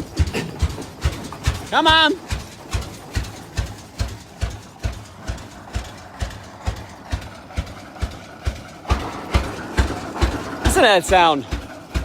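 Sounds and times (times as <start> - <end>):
tractor engine exhaust popping: 0.0 - 12.0.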